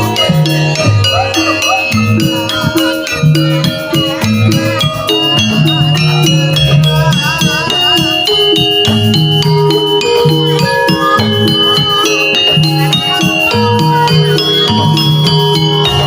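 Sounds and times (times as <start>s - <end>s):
ornamented melody line: 0.0s - 16.0s
struck metallophone notes: 0.0s - 16.0s.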